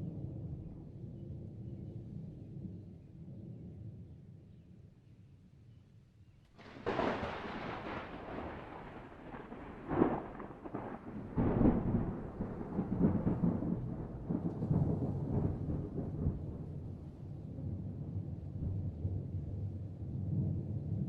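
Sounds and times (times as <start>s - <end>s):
thunder crack and rumble: 6.6s - 21.0s.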